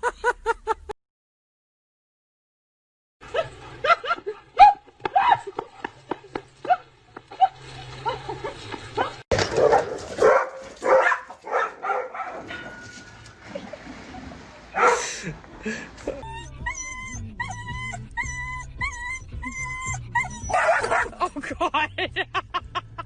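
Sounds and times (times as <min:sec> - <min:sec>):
dog yipping and barking: 0:04.6 - 0:05.5, 0:09.0 - 0:12.9, 0:14.8 - 0:15.0, 0:16.2 - 0:21.2
dog whining: 0:16.1 - 0:21.1.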